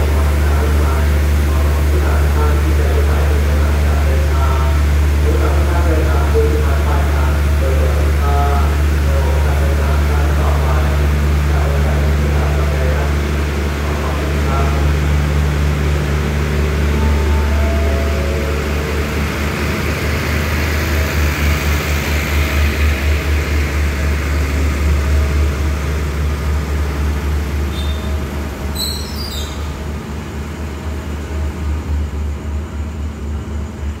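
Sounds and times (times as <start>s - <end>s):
train coaches rumbling past: 0.0s - 34.0s
short high wheel squeals: 27.7s - 29.8s.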